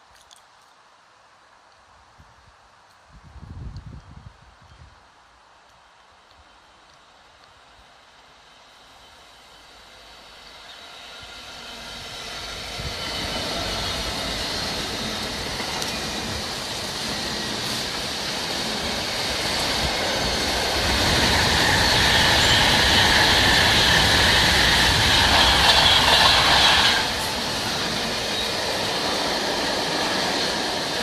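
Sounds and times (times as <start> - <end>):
train wheels on rails: 6.2 - 31.0.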